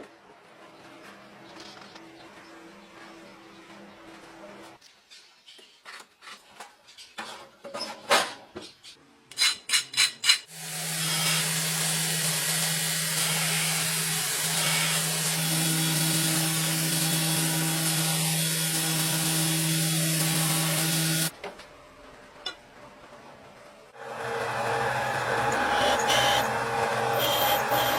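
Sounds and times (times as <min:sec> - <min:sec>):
power tool working steel: 0:10.5 - 0:21.3, 0:24.0 - 0:27.9.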